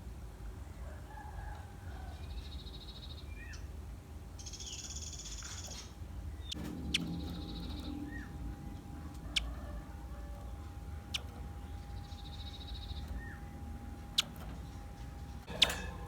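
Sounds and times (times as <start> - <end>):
steady low hum: 6.0 - 16.0
sharp bird ticks: 6.4 - 15.8
bird trilling and calling: 6.4 - 16.0.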